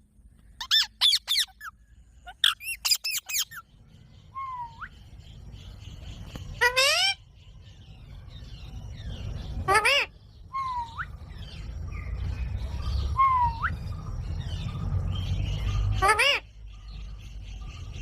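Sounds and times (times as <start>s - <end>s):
low rumble: 7.2s - 18.0s
parrot whistles rising: 13.1s - 13.8s.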